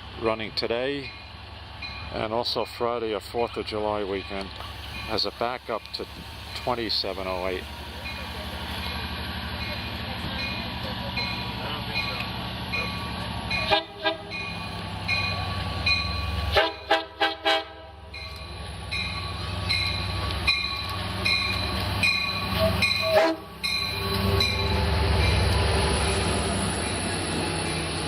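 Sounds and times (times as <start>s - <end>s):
diesel train engine running: 0.0s - 28.0s
train horn blasts: 13.6s - 14.3s, 16.5s - 18.0s, 22.6s - 23.5s.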